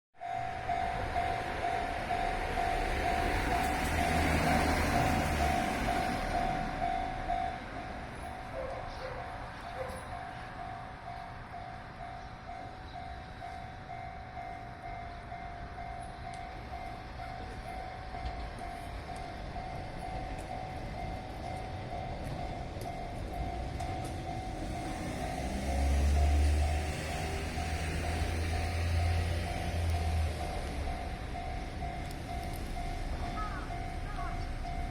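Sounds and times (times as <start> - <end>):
electric train rumble: 0.2 - 34.9.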